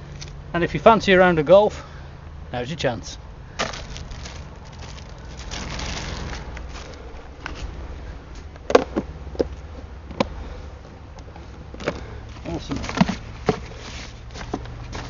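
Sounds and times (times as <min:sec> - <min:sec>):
objects rustling: 0:03.6 - 0:07.7, 0:11.8 - 0:15.0.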